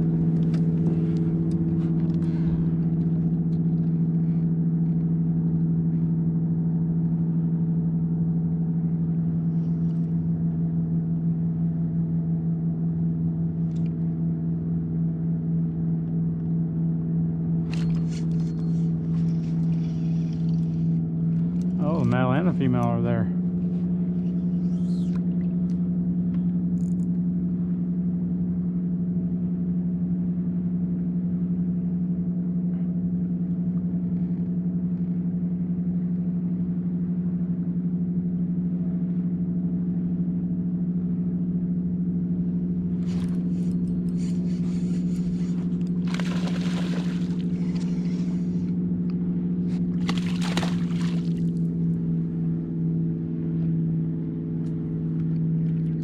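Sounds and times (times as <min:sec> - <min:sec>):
motor humming: 0:00.0 - 0:05.1, 0:42.8 - 0:56.0.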